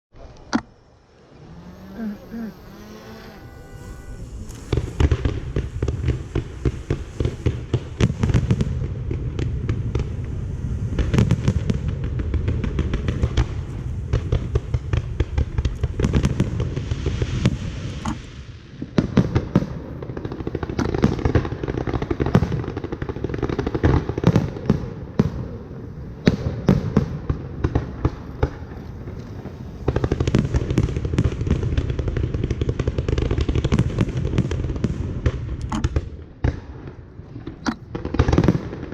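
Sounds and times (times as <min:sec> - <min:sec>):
fireworks bangs and crackling: 0:01.5 - 0:38.9.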